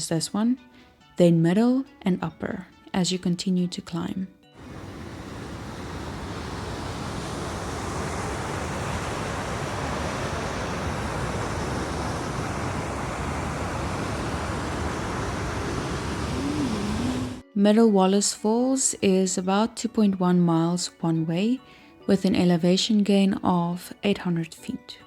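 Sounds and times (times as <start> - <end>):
waterfall rushing: 4.6 - 17.4.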